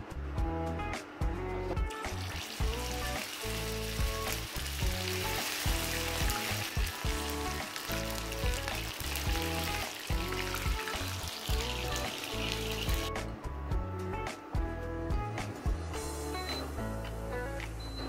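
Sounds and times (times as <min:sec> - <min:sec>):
background music with beat: 0:00.0 - 0:18.0
chicken sizzling in hot oil: 0:02.0 - 0:13.2.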